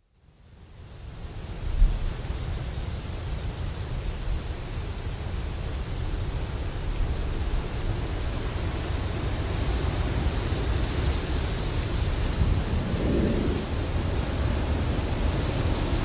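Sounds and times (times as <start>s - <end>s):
wind buffeting microphone: 9.5s - 16.0s.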